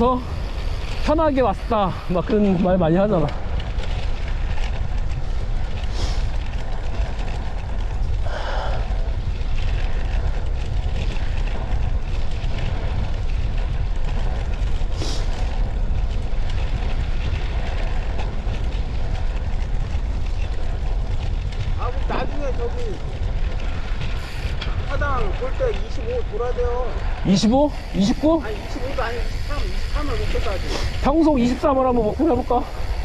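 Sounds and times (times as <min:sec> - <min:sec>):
bicycle road noise: 0:00.0 - 0:33.0
wind rumble on microphone: 0:00.0 - 0:33.0
short hiss: 0:29.1 - 0:31.1.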